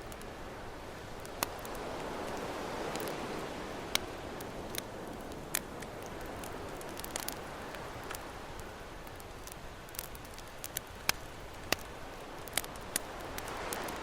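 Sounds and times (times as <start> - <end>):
campfire crackling and popping: 0.0 - 14.0
ocean waves: 0.2 - 9.6, 11.4 - 14.0.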